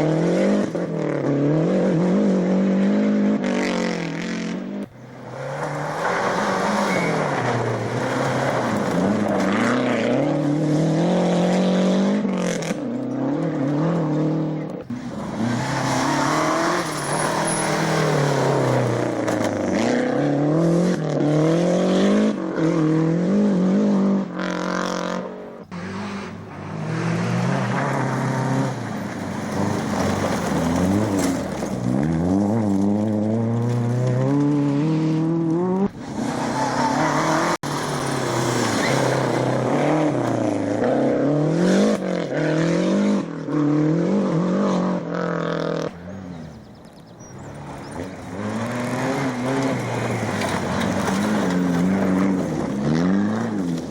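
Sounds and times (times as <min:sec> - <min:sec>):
rally car engines revving: 0:00.0 - 0:53.9.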